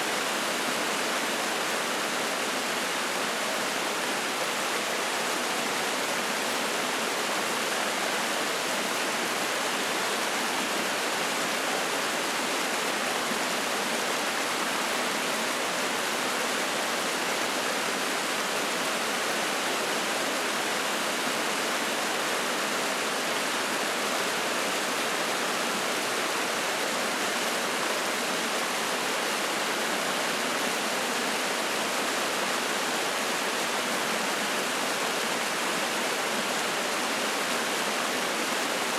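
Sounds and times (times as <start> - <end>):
stream water rushing over rocks: 0.0 - 38.9.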